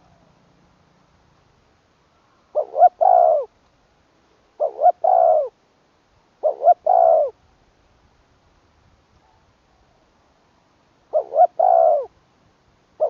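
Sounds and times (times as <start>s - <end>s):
dove cooing: 2.5s - 3.5s, 4.6s - 5.6s, 6.4s - 7.4s, 11.1s - 12.2s.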